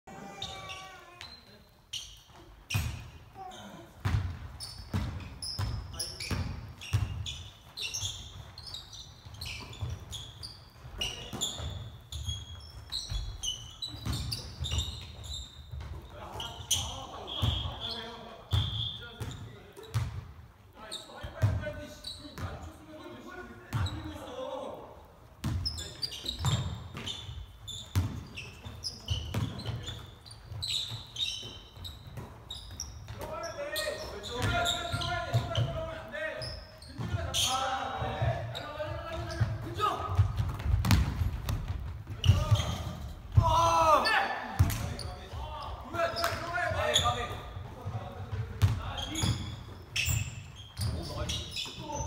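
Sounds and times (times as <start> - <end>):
sneakers squeaking on floor: 0.1 - 52.0
basketball bouncing on court: 2.4 - 3.2, 4.0 - 17.7, 18.5 - 20.4, 25.4 - 33.4, 34.2 - 35.9, 36.8 - 43.8, 44.6 - 45.4, 46.2 - 51.8.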